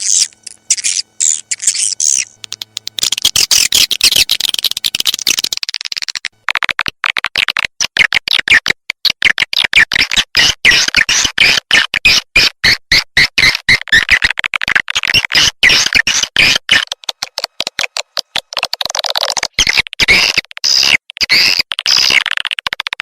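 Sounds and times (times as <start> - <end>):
swiftlet chirps and clicks: 0.0 - 6.4.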